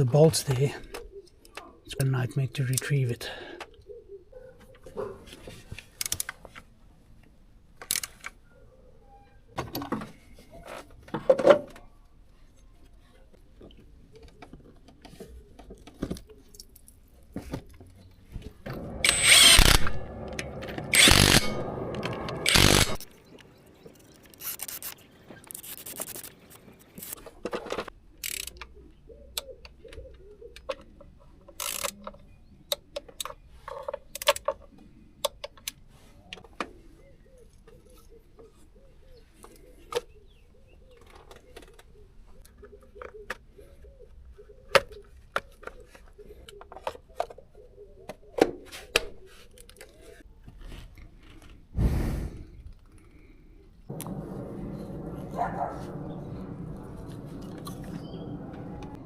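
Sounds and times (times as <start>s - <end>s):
power tool running: 18.7s - 23.0s
clicks and knocks of tools: 29.4s - 36.7s.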